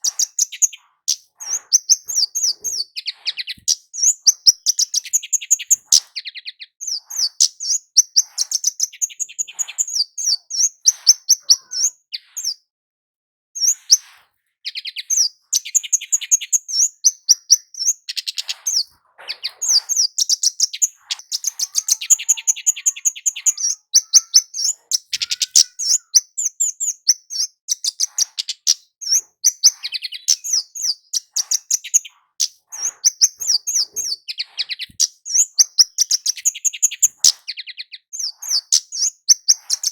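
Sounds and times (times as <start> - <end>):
bird high-pitched chip notes: 0.0 - 12.6, 19.7 - 28.8.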